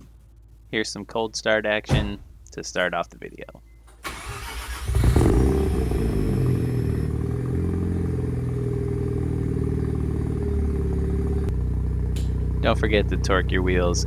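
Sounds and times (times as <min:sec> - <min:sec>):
rotary engine revving and idling: 0:04.2 - 0:14.0.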